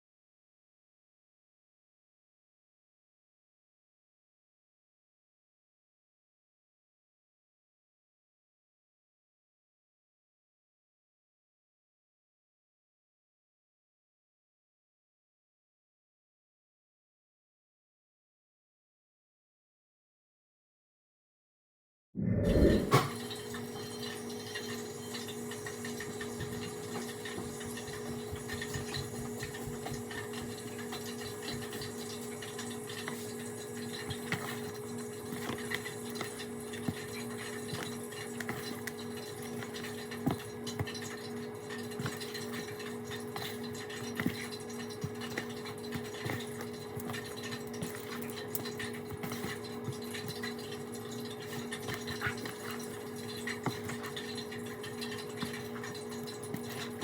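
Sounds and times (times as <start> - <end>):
kitchen appliance electrical hum: 22.2 - 57.0.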